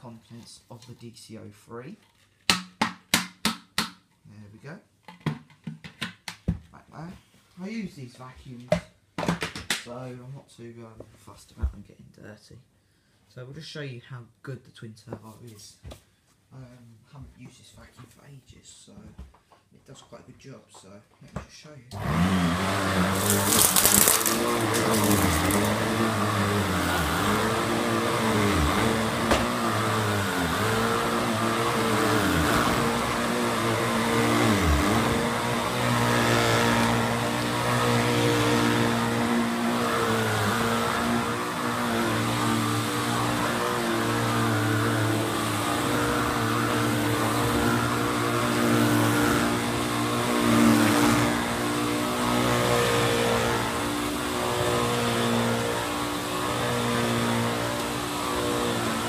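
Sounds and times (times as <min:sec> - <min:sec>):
vacuum cleaner running on carpet: 0:22.0 - 0:59.0.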